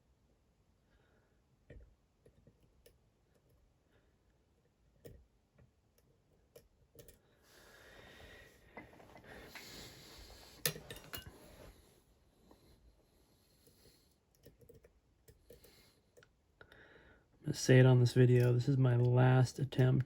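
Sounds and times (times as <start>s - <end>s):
soft hissing noise: 7.4s - 14.1s.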